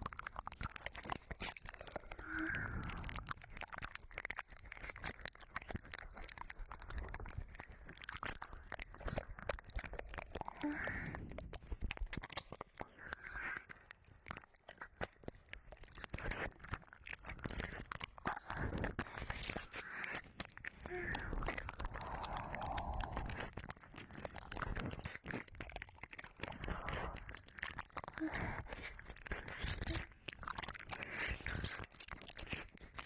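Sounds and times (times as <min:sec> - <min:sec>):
tongue and lip clicks: 0:00.0 - 0:33.0
wet ear-licking sounds: 0:00.0 - 0:33.0
soft breaths: 0:10.3 - 0:12.0, 0:17.3 - 0:25.6, 0:26.4 - 0:30.3.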